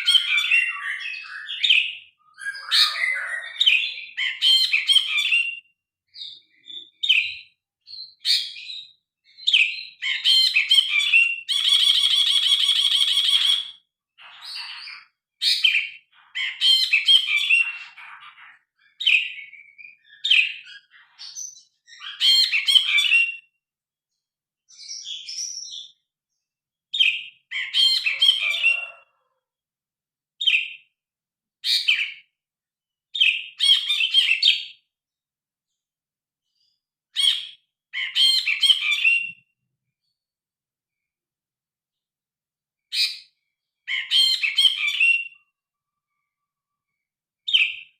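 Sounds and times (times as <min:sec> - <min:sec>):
bird singing chirps and whistles: 0:00.0 - 0:23.5, 0:24.7 - 0:26.0, 0:26.9 - 0:29.0, 0:30.4 - 0:30.8, 0:31.6 - 0:32.2, 0:33.2 - 0:34.8, 0:37.2 - 0:39.6, 0:42.9 - 0:43.3, 0:43.9 - 0:45.5, 0:47.5 - 0:47.9.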